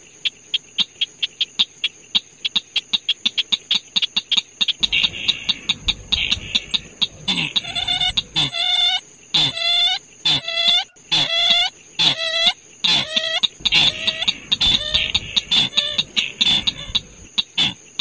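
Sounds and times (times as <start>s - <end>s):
harsh bird calls: 0.0s - 18.0s
steady high whine: 4.8s - 8.5s, 13.4s - 17.3s.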